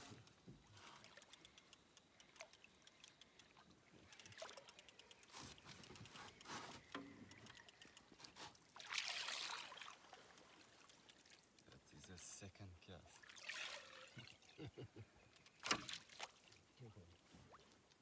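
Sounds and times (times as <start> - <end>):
small clicks and knocks: 0.0 - 9.0, 9.6 - 12.2, 15.3 - 16.3
water lapping around boat: 0.0 - 18.0.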